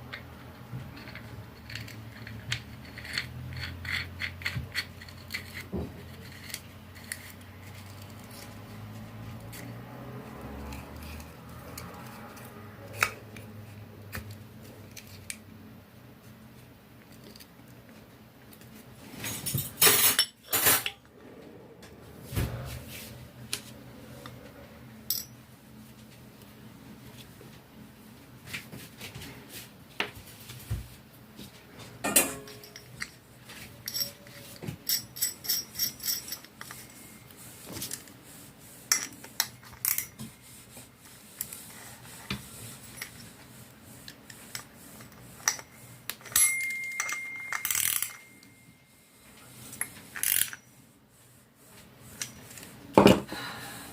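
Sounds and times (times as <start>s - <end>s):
metal clinks and knocks: 46.2s - 48.6s.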